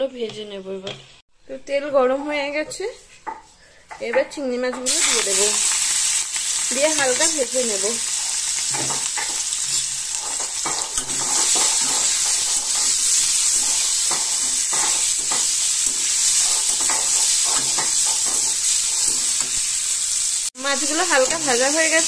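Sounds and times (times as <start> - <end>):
prawns sizzling in hot oil: 4.8 - 22.0
metal spatula scraping: 8.7 - 19.6.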